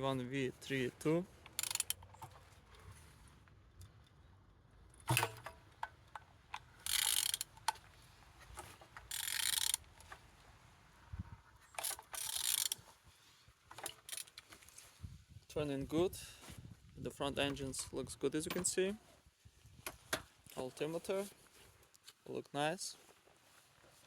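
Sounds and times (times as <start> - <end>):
ratchet wrench clicking: 1.5 - 2.1, 6.8 - 7.8, 9.1 - 9.9, 11.8 - 12.8, 14.0 - 14.3.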